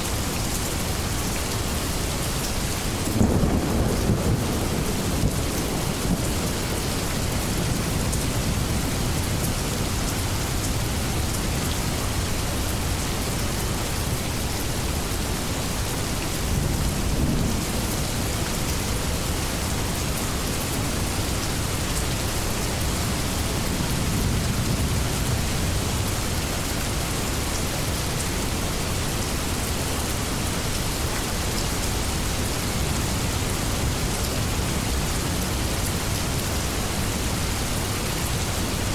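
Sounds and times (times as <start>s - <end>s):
heavy rain falling: 0.0s - 38.9s
distant rolling thunder: 2.9s - 10.9s.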